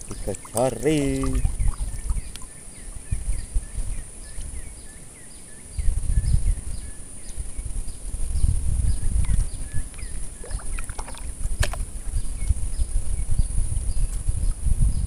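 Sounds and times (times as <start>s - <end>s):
bird chirping: 0.0s - 11.3s
wind buffeting microphone: 0.0s - 15.0s.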